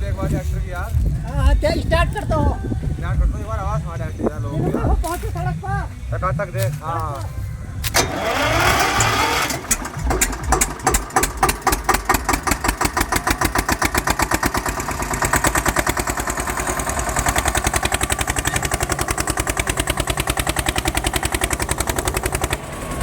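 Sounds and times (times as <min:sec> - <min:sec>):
tractor diesel engine chugging: 0:00.0 - 0:23.0
starter motor cranking: 0:07.8 - 0:23.0.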